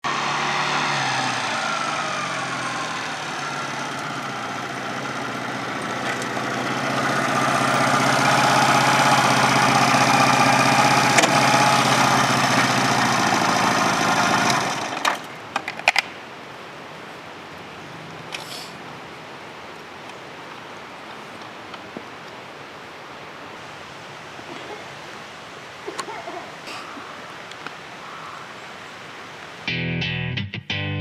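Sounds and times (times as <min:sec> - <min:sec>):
engine running: 0:00.0 - 0:15.9.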